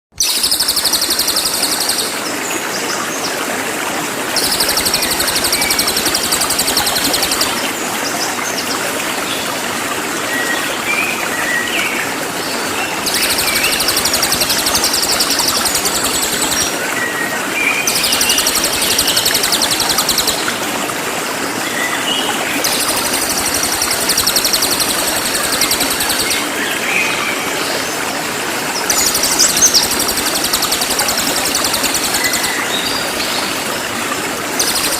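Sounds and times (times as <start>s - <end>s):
bird singing high-pitched trills: 0.2s - 2.2s, 4.4s - 7.6s, 13.0s - 16.8s, 17.8s - 20.5s, 22.6s - 26.5s, 28.9s - 33.0s.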